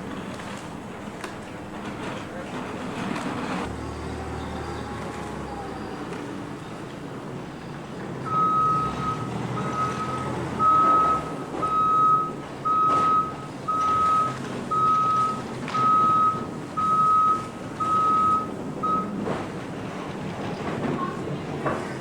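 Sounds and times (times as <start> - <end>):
low engine rumble: 0.0 - 22.0
vehicle backup alarm beeping: 8.2 - 19.5.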